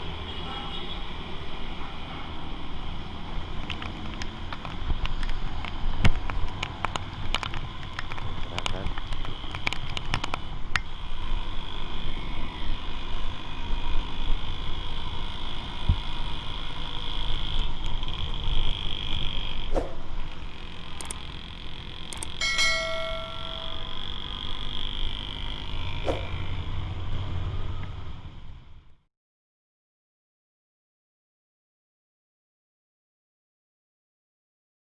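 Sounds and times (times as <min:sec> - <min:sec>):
tyres on wet road: 0:00.0 - 0:10.8
motorcycle engine: 0:00.0 - 0:29.0
vehicle horn: 0:00.2 - 0:01.1.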